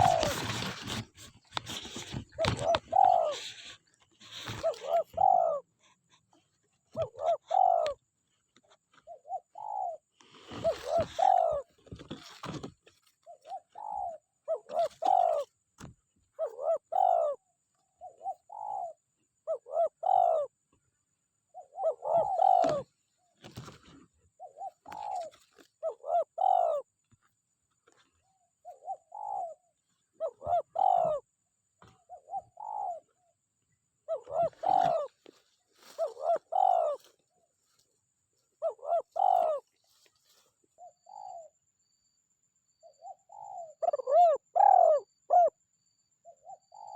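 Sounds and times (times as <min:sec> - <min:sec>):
dove cooing: 0:00.0 - 0:08.1, 0:08.7 - 0:20.6, 0:21.4 - 0:27.1, 0:27.9 - 0:41.5, 0:42.8 - 0:45.6, 0:46.2 - 0:46.9.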